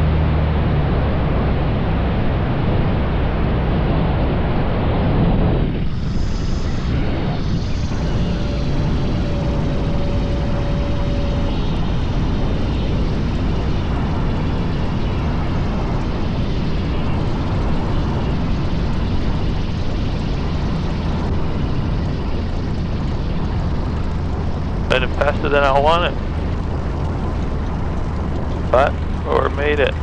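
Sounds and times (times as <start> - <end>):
airplane engine and propeller: 0.0 - 30.0
steady tone: 0.0 - 30.0
wind noise: 0.0 - 30.0.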